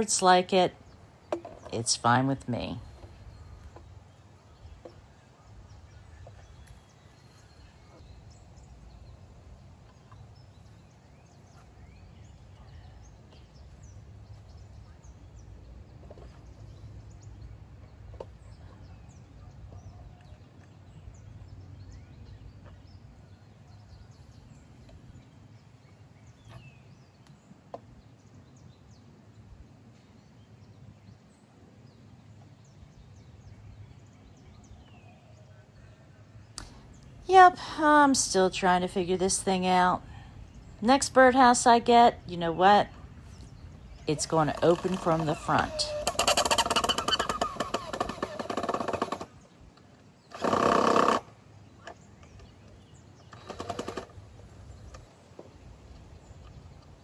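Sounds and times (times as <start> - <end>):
sharp clicks: 36.6 - 37.1, 44.2 - 55.1.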